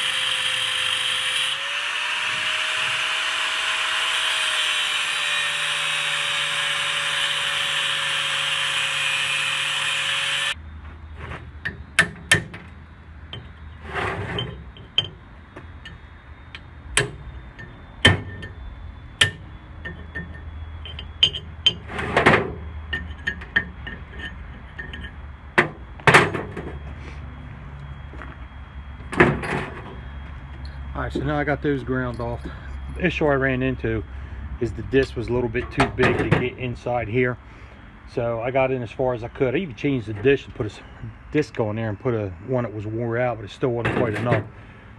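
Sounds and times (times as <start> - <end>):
angle grinder grinding metal: 0.0 - 10.6.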